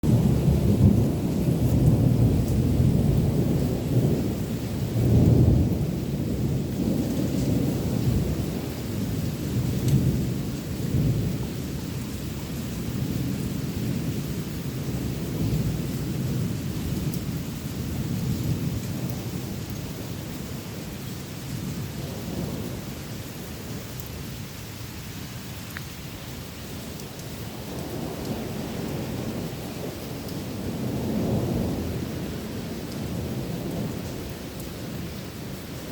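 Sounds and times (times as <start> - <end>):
thunder rumbling: 0.0 - 24.5, 26.7 - 35.9
rain hiss: 0.0 - 35.9.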